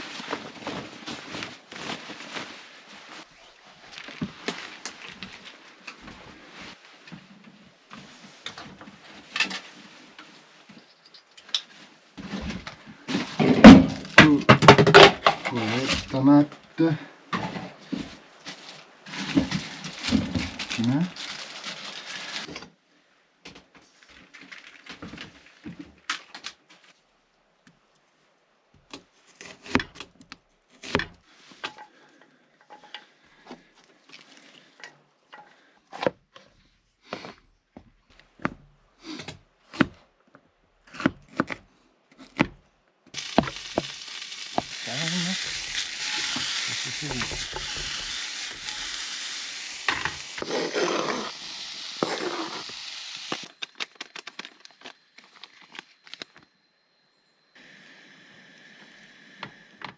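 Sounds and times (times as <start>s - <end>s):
food sizzling in frying pan: 43.2s - 53.5s.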